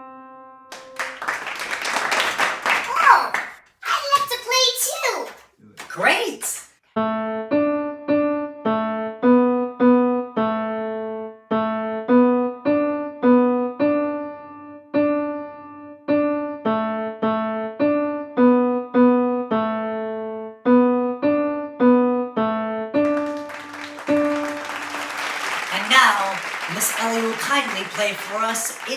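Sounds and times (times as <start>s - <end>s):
keyboard playing simple melody: 0.0s - 1.8s, 7.0s - 25.7s
applause: 0.7s - 6.2s, 23.0s - 28.9s.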